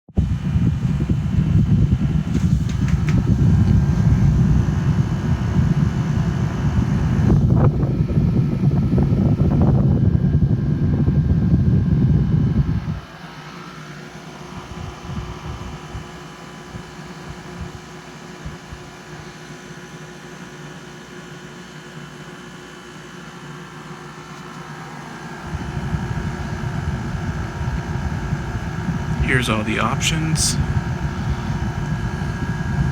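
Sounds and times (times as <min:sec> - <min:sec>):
heavy low rumble: 0:00.2 - 0:12.8
air conditioner humming: 0:00.2 - 0:19.4, 0:23.8 - 0:32.9.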